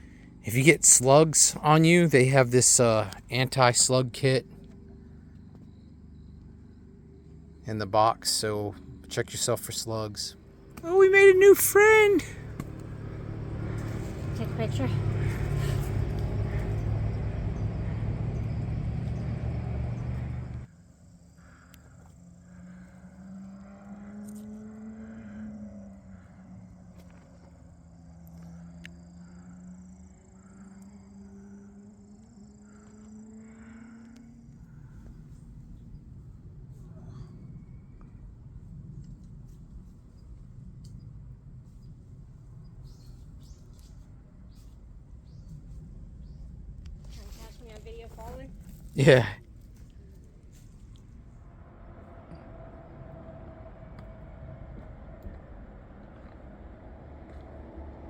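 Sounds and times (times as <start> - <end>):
faint hum: 0.0 - 23.6, 25.3 - 58.0
vehicle engine drone: 0.0 - 58.0
small birds chirping: 10.8 - 20.7
steady low rumble: 44.1 - 58.0.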